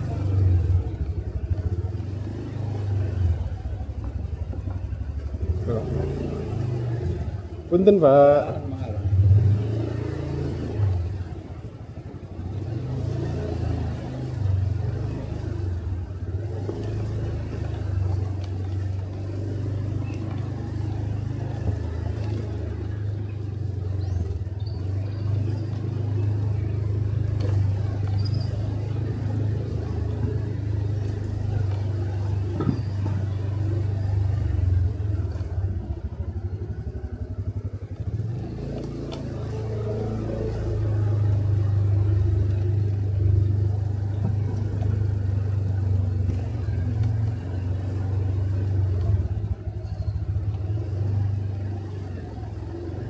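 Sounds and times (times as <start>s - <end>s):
motorcycle engine hum: 0.0s - 53.0s
road noise: 0.0s - 53.0s.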